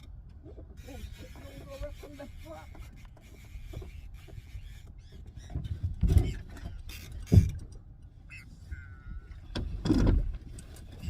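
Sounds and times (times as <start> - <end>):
knocks and rustling on a boat: 0.0 - 11.0.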